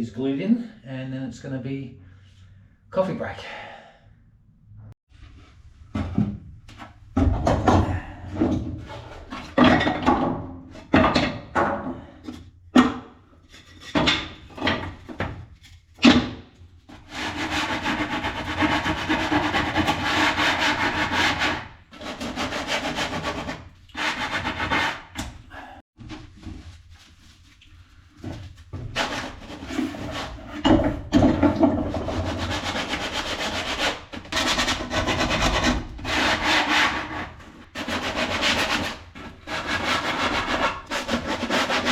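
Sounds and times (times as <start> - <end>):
scraping strokes on wood: 17.0 - 25.7, 28.8 - 41.9
rasping on wood: 17.1 - 25.3, 31.8 - 41.9.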